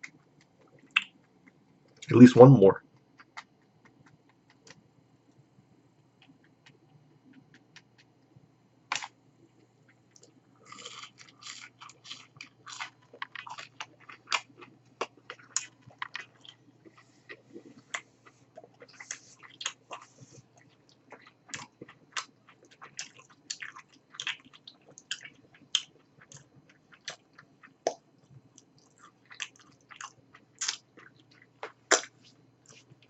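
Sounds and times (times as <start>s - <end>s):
person chewing crunchy food: 10.1s - 33.0s.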